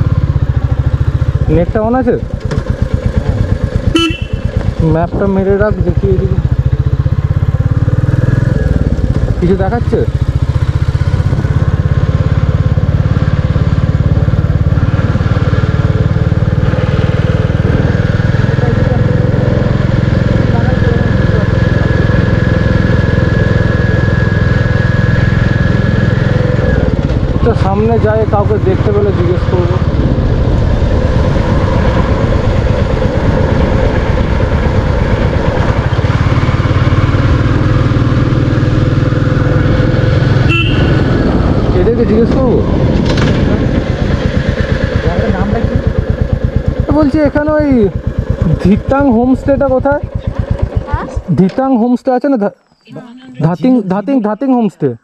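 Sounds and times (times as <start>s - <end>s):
motorcycle engine thudding: 2.2s - 18.3s, 40.3s - 52.8s.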